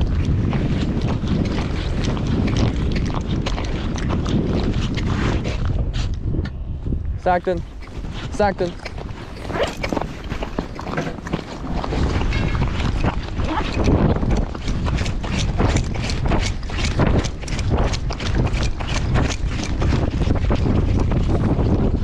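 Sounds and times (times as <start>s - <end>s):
strong wind buffeting microphone: 0.0s - 22.0s
crunching footsteps: 7.7s - 21.9s.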